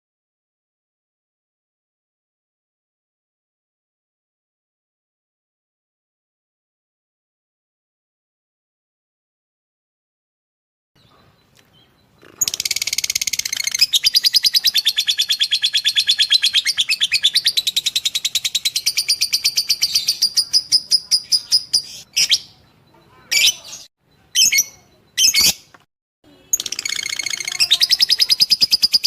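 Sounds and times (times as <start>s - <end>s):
bird chattering trill: 11.0s - 25.7s, 26.3s - 29.0s
sharp bird calls: 11.0s - 25.7s, 26.3s - 29.0s.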